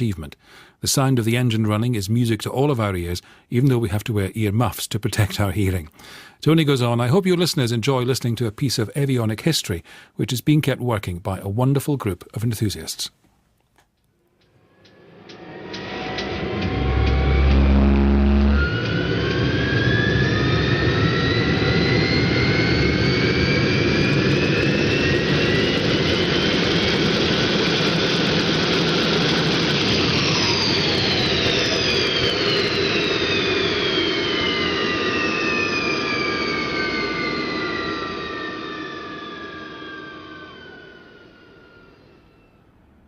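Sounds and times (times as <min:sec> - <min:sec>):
turbojet engine whine: 0:05.1 - 0:06.2, 0:14.4 - 0:43.0.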